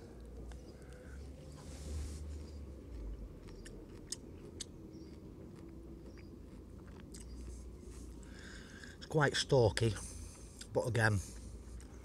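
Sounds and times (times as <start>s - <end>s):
person chewing: 2.2s - 8.4s, 11.3s - 12.0s
stems clicking when bitten: 2.9s - 7.4s.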